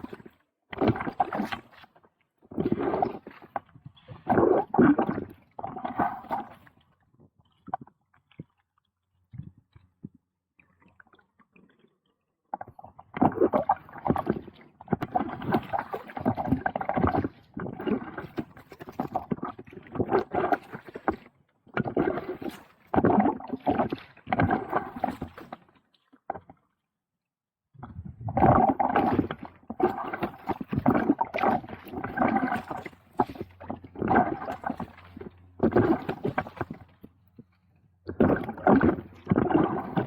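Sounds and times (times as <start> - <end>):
kayak paddle splashing: 22.0 - 26.0, 28.5 - 37.0, 38.1 - 40.0.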